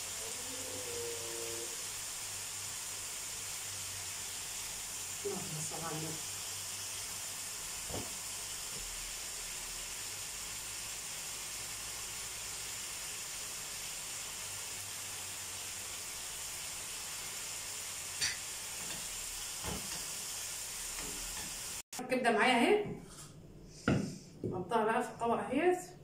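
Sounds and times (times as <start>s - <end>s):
food sizzling in pans: 0.0s - 21.9s.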